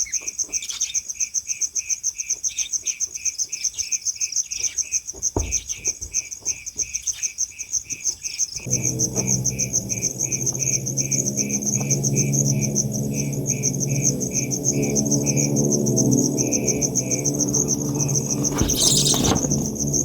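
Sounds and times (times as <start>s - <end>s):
crickets trilling: 8.6s - 20.0s
low steady hum: 8.6s - 20.0s.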